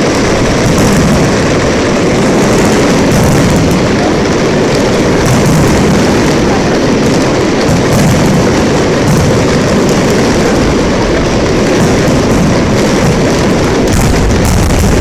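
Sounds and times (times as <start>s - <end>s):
fireworks barrage: 0.0s - 15.0s.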